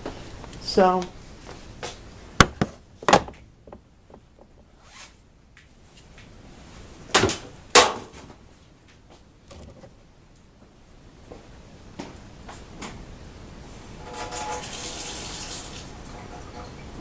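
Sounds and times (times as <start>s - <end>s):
hard objects knocking and clicking: 2.4s - 4.7s, 9.5s - 10.0s.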